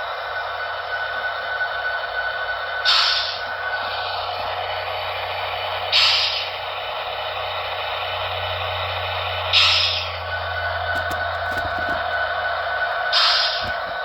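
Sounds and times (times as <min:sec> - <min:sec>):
diesel engine idling through small speaker: 0:00.0 - 0:14.0.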